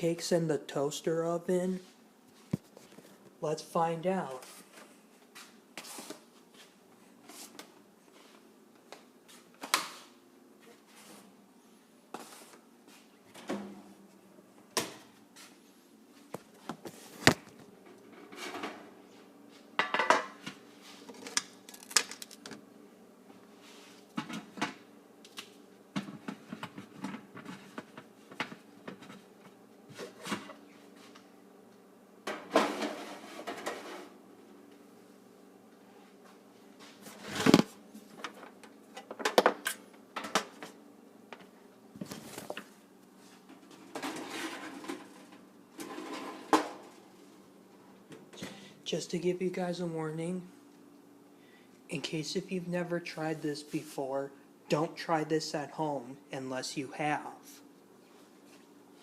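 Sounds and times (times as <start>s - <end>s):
faint steady hum: 0.0s - 59.0s
doors and drawers opening and shutting: 13.3s - 13.9s, 32.3s - 34.2s, 43.8s - 46.9s.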